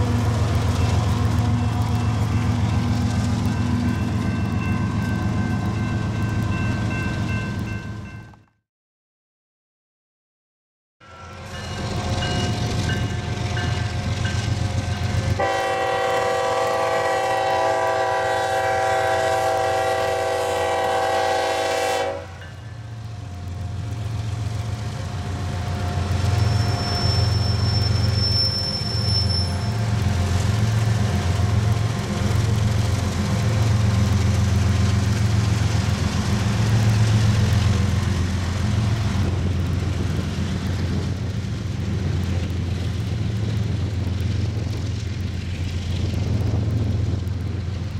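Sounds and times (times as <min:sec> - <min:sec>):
locomotive air horn: 0:15.4 - 0:22.4.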